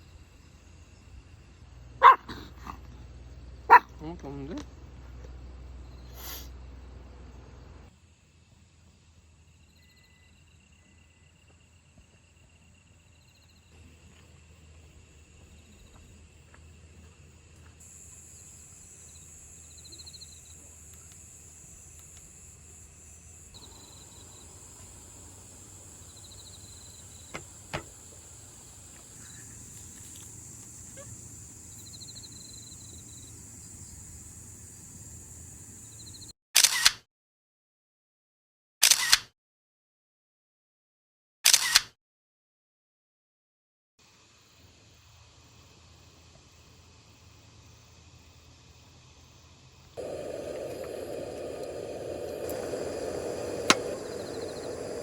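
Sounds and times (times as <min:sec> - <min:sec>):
cicadas buzzing: 0:17.8 - 0:36.3, 0:50.0 - 0:55.0
insect pulsed chirps: 0:17.8 - 0:36.3, 0:50.0 - 0:55.0
sharp clicks: 0:50.0 - 0:55.0.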